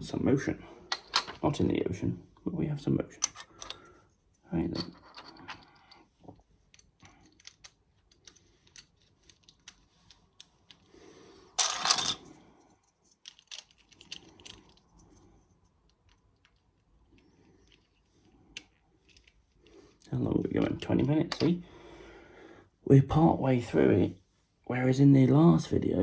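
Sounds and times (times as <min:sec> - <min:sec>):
plastic toy bricks clicking: 0:00.9 - 0:01.4, 0:03.2 - 0:03.8, 0:06.7 - 0:10.9, 0:13.1 - 0:14.8
rattle of plastic pieces: 0:04.7 - 0:20.0.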